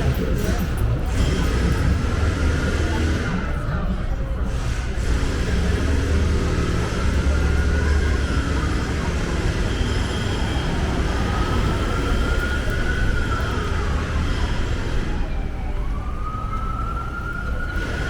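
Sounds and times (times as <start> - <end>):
street traffic rumble: 0.0 - 18.0
distant siren wailing: 5.6 - 18.0.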